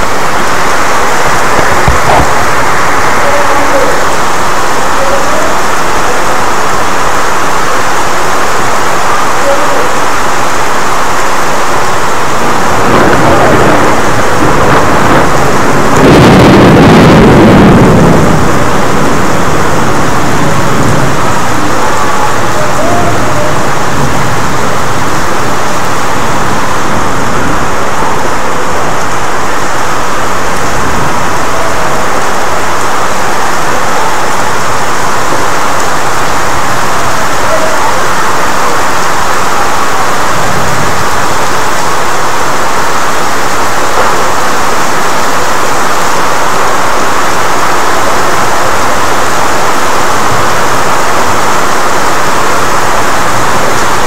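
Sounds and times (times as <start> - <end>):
rain on plants and pots: 0.0 - 54.0
low rumble of thunder: 12.2 - 31.4.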